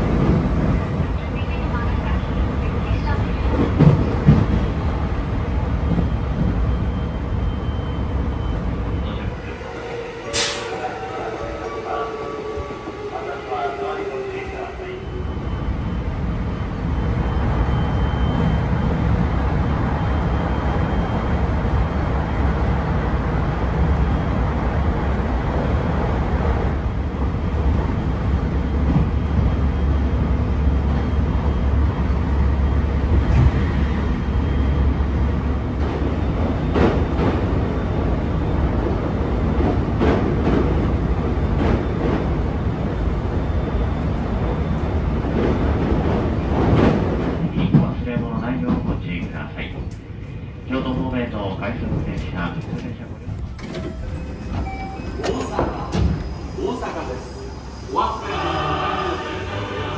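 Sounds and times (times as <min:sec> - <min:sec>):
train wheels rumbling on rails: 0:00.0 - 0:10.9, 0:11.6 - 0:57.6.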